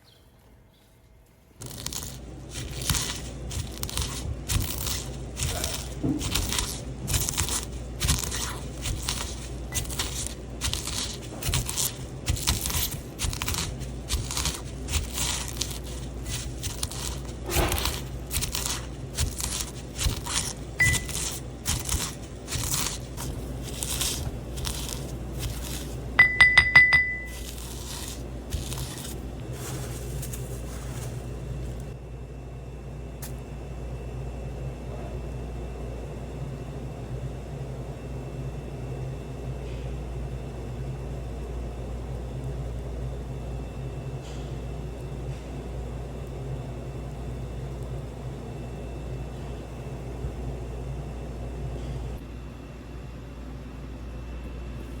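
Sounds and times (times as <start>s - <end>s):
steady low hum: 0.0s - 55.0s
high electronic appliance beeps: 20.8s - 21.4s, 26.2s - 28.0s
utensils and glassware clinking: 26.2s - 27.5s.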